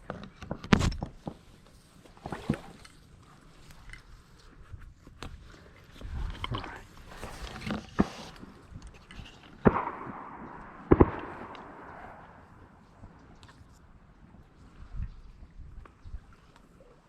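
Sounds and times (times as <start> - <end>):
shotgun shots echoing: 9.6 - 13.2.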